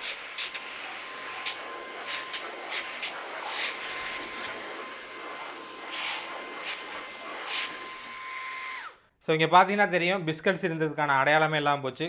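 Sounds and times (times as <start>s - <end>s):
vacuum sucking up crumbs: 0.0s - 9.0s
handheld vacuum cleaner whine: 0.0s - 9.1s.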